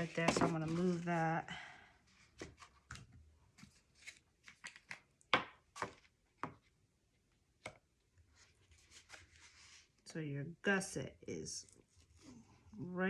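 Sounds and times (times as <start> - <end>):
paper rustling: 0.0 - 1.2, 2.2 - 5.0, 8.3 - 10.0.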